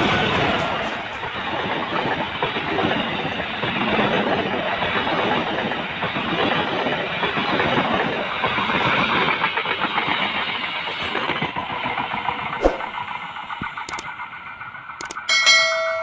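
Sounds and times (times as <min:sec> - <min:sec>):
train wheels clattering on track: 0:00.0 - 0:16.0
sharp clicks: 0:13.9 - 0:14.1, 0:15.0 - 0:15.2.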